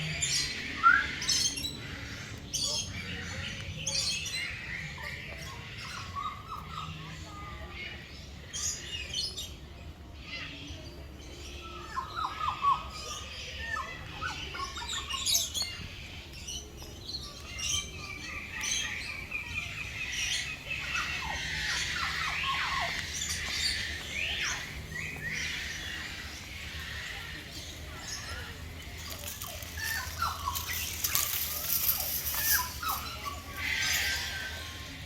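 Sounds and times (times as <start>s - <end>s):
birds chirping and calling: 0.0s - 35.0s
bird trill: 11.3s - 35.0s.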